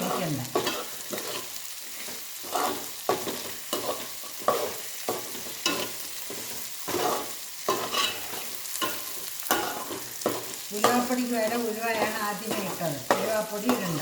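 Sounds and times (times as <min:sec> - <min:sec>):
chillies sizzling in hot oil: 0:00.0 - 0:14.0
spoon scraping a pan: 0:00.0 - 0:14.0.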